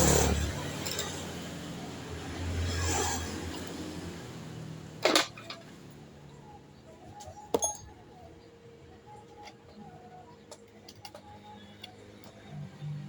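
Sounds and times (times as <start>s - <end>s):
metal tools clinking: 0.8s - 1.4s, 5.0s - 5.8s, 7.5s - 7.9s.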